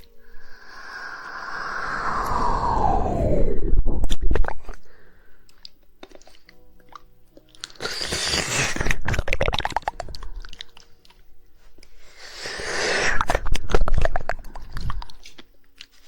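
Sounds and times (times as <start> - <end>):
wet tongue clicks: 5.5 - 11.2, 13.2 - 16.0.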